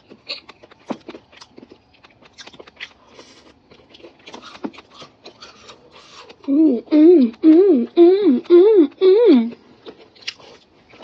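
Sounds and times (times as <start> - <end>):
biting and chewing crunches: 0.0 - 6.5, 9.5 - 11.0.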